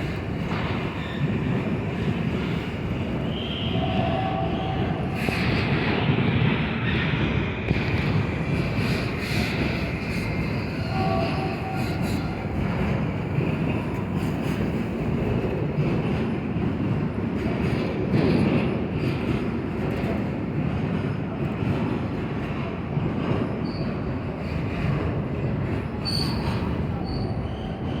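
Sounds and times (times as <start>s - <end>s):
train wheels rumbling: 0.0s - 28.0s
high wheel squeals: 26.0s - 28.0s.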